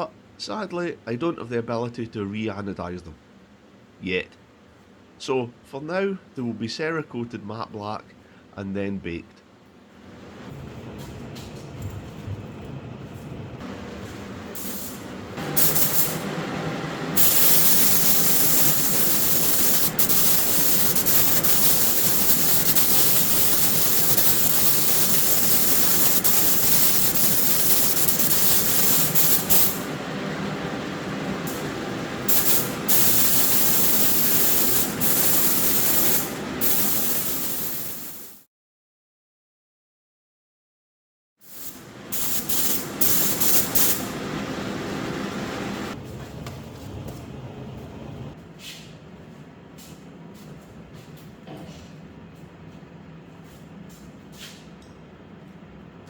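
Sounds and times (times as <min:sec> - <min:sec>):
steady low hum: 0:09.2 - 0:36.7, 0:41.7 - 0:54.2
spray gun hissing: 0:13.6 - 0:38.4, 0:41.4 - 0:46.0.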